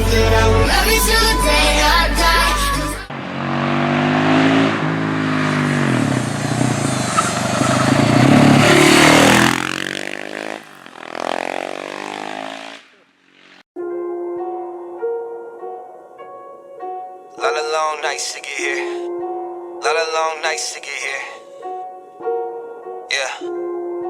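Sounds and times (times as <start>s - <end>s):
motorcycle engine revving: 3.1s - 13.6s.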